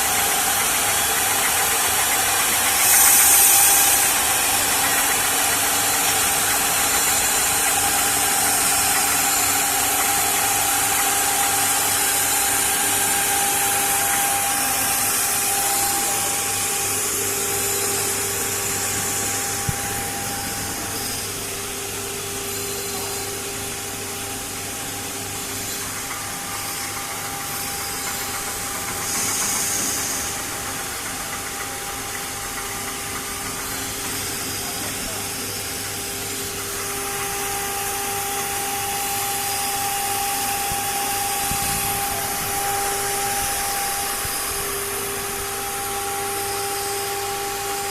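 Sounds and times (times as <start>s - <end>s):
machine whine with high hiss: 0.0s - 47.9s.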